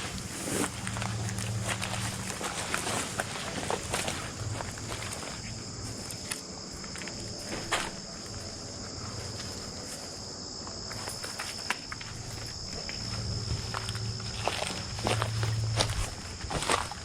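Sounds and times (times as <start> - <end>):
footsteps on ground: 0.0 - 17.0
insects trilling: 0.0 - 17.0.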